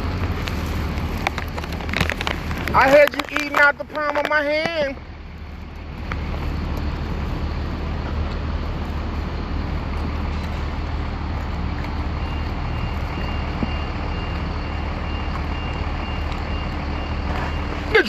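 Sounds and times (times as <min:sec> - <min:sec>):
engine and traffic rumble: 0:00.0 - 0:18.0
reversing alarm beeping: 0:12.0 - 0:18.0.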